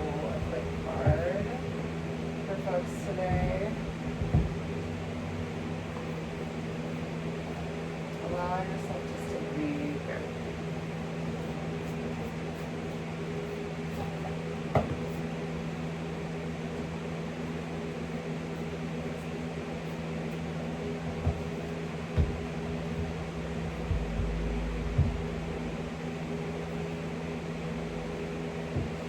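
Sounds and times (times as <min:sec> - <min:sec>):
electric fan humming: 0:00.0 - 0:29.0
soft thumps: 0:03.2 - 0:04.7, 0:23.8 - 0:25.6
low rumble: 0:03.2 - 0:06.0, 0:22.6 - 0:26.0.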